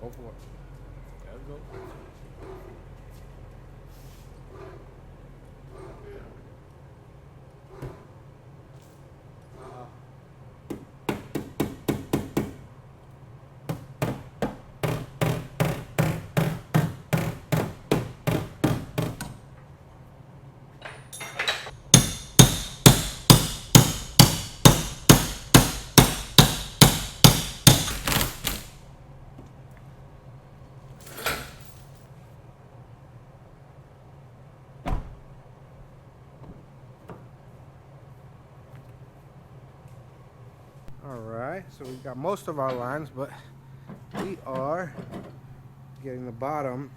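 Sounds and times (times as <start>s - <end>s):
hammer blows on sheet metal: 21.8s - 28.8s.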